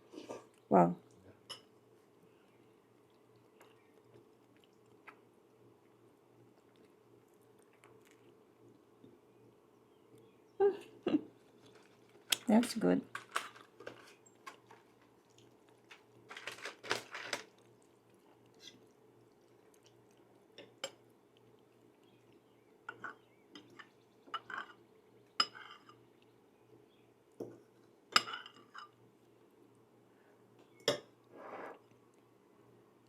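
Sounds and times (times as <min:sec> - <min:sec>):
faint steady hum: 0:00.0 - 0:33.0
cutlery clinking on a plate: 0:22.9 - 0:24.8, 0:25.4 - 0:26.0, 0:28.2 - 0:29.0.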